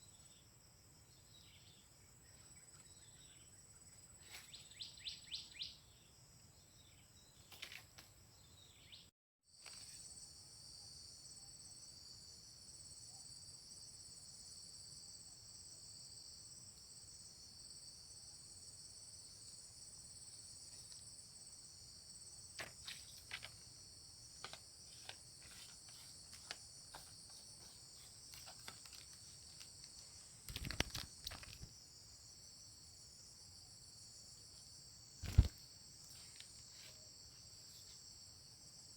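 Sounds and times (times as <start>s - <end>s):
insects trilling: 0.0s - 6.1s, 9.6s - 38.9s
soft clicks and rustles: 24.4s - 31.7s.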